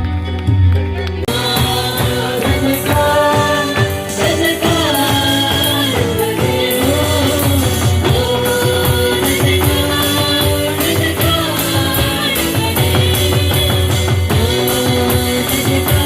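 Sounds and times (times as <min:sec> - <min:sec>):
worship band music: 0:00.0 - 0:16.0.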